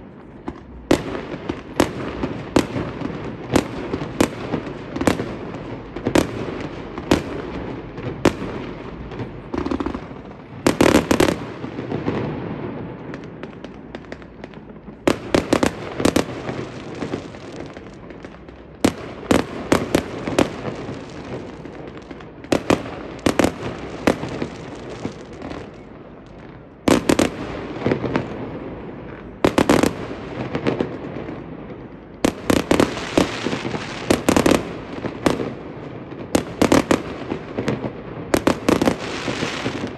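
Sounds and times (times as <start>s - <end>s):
distant fireworks rumble and crackle: 0.0s - 39.9s
fireworks bangs: 0.0s - 39.9s.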